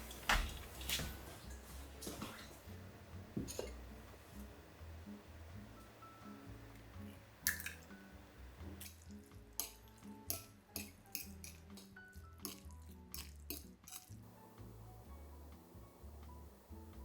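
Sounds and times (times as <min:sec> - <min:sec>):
soft background music: 0:00.0 - 0:17.0
dishes and utensils clinking: 0:03.4 - 0:03.9, 0:08.8 - 0:14.2.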